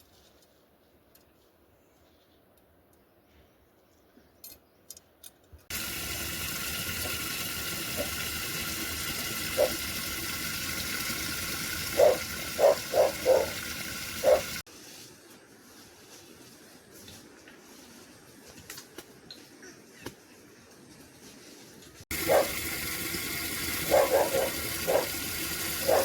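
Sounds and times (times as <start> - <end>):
rushing water: 5.7 - 14.6, 22.1 - 26.0.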